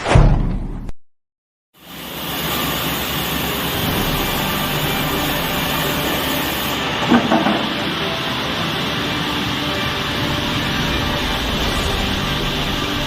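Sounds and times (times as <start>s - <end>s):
machinery rattling and rumbling: 3.7s - 13.0s.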